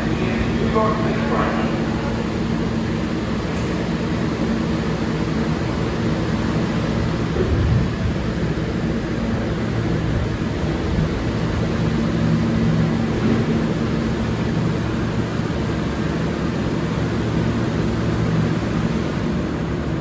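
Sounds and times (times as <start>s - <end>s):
subway train rumbling on rails: 0.0s - 20.0s.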